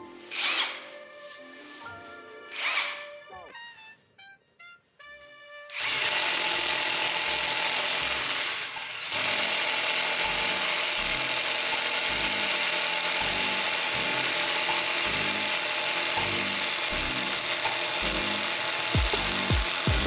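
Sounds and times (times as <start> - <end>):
impact driver whirring: 0.3 - 0.8, 2.5 - 3.1, 5.7 - 20.0.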